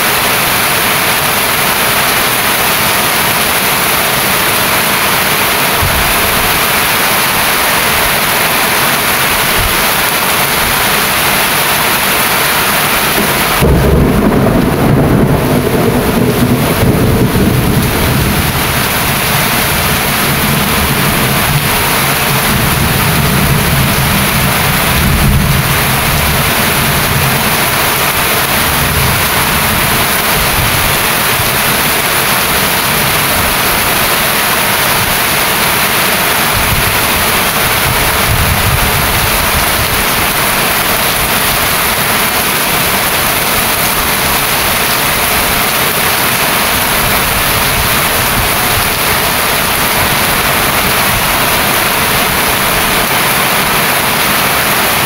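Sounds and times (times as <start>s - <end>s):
heavy rain: 0.0s - 55.0s
thunder rumble: 12.8s - 54.2s.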